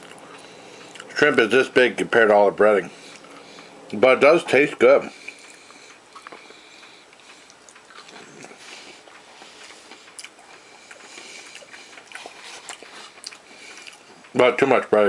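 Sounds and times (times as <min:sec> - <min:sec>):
person chewing crunchy food: 0:00.0 - 0:01.2, 0:05.2 - 0:14.3.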